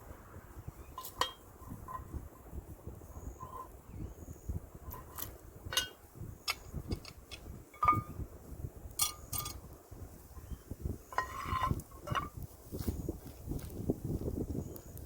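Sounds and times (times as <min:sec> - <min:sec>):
low steady rumble: 0:00.0 - 0:13.7
sharp clicks and clinks: 0:05.0 - 0:08.2, 0:09.0 - 0:09.6.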